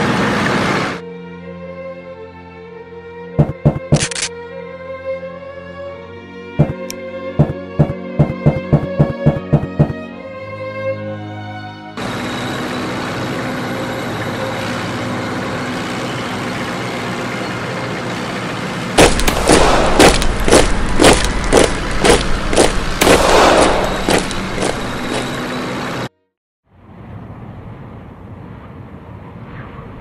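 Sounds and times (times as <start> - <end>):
steady rushing background: 3.4 - 4.2, 6.6 - 10.0, 18.4 - 26.0
rapid gunfire volley: 19.0 - 20.6, 23.0 - 24.1.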